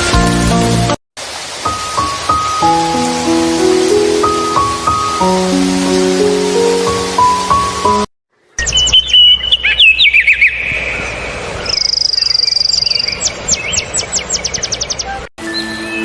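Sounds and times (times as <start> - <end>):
songbird singing: 8.6 - 16.0.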